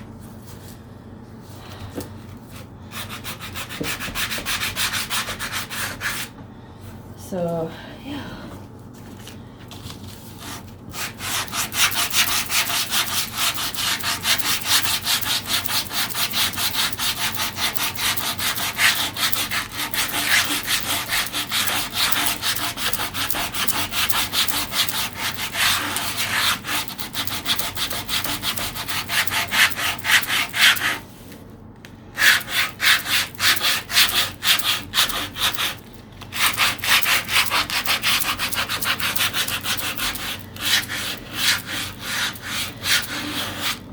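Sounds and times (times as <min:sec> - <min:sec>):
sandpaper rubbing wood: 0:10.4 - 0:31.0, 0:32.2 - 0:43.8.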